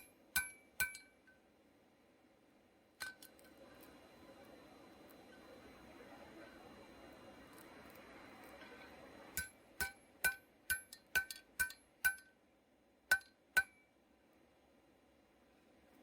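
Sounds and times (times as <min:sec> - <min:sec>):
hammer striking metal: 0:00.0 - 0:01.4, 0:09.4 - 0:12.4, 0:13.1 - 0:13.9.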